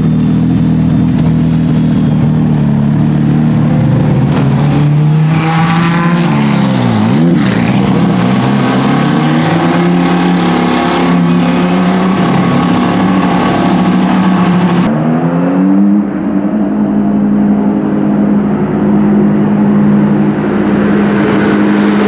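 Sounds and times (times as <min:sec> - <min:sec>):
race car engines running hard: 0:00.0 - 0:22.0
race car passing by: 0:03.6 - 0:16.1, 0:19.2 - 0:22.0.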